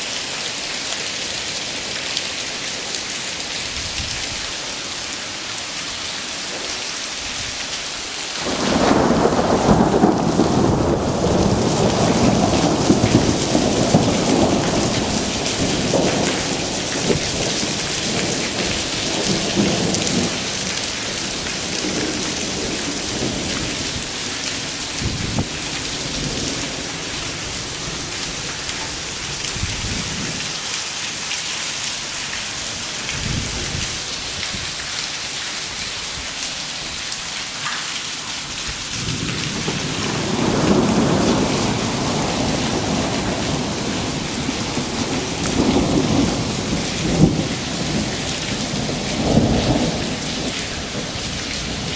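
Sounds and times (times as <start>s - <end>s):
hail and rain falling: 0.0s - 51.9s
thunder rumbling: 8.4s - 30.6s, 32.9s - 34.8s, 38.6s - 51.9s.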